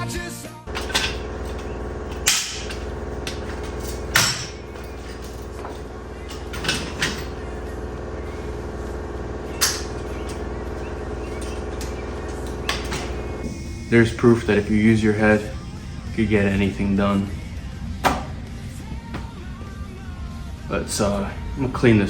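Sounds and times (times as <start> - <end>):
knocks and clanks of tools: 0.7 - 8.0, 9.4 - 13.5, 18.0 - 18.3
steady background hum: 0.7 - 22.0.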